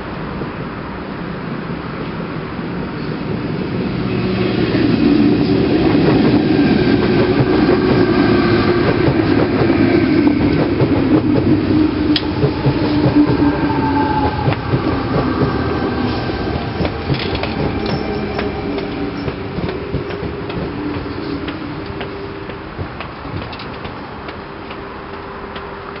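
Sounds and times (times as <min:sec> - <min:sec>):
train rumble: 0:00.0 - 0:26.0
train wheels clicking on rails: 0:00.0 - 0:26.0.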